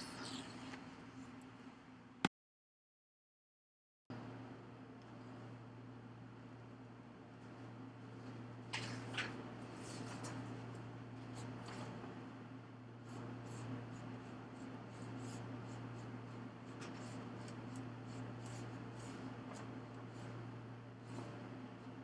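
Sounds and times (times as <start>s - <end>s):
steady low hum: 0.0s - 2.3s, 4.1s - 22.0s
faint rustling and scratching: 8.7s - 12.0s.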